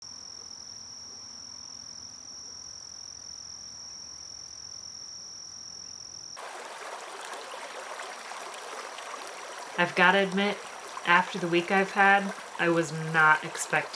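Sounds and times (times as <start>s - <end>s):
high-pitched insect trill: 0.0s - 6.4s
running water hiss: 6.4s - 13.9s.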